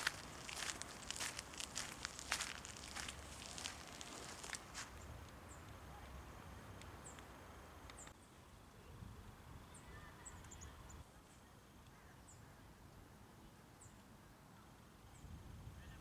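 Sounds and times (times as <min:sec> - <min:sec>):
footsteps crunching: 0:00.0 - 0:05.0
small birds chirping: 0:00.0 - 0:06.4.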